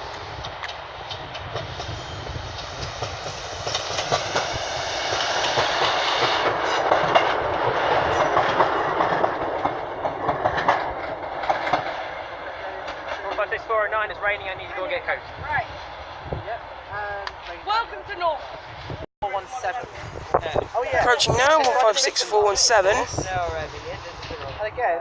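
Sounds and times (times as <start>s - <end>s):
train wheels clicking over rail joints: 0.0s - 14.4s
train running rumble: 0.0s - 25.0s.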